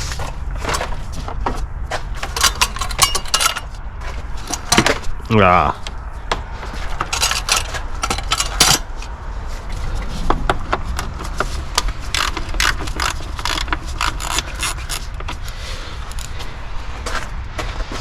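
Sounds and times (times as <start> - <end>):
ratchet wrench clicking: 11.8 - 16.4.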